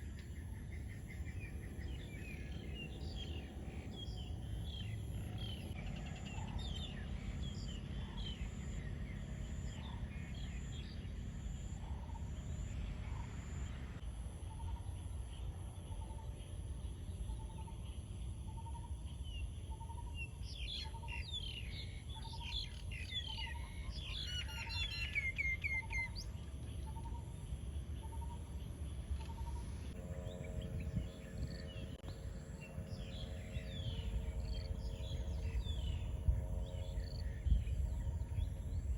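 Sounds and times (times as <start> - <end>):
high-pitched insect drone: 29.4 - 38.9
birds chirping and calling: 30.0 - 38.9
low rumble: 30.0 - 38.9.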